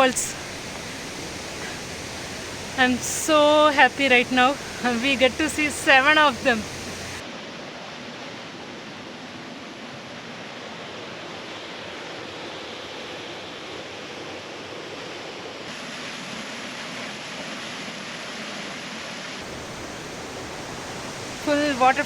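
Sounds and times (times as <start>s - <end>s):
waterfall rushing: 0.0s - 7.2s, 19.4s - 22.0s.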